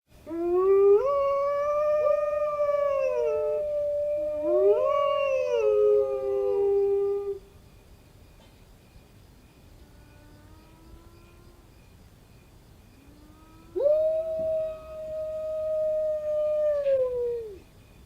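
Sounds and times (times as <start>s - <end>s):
canine howls: 0.3s - 7.4s, 13.3s - 17.6s.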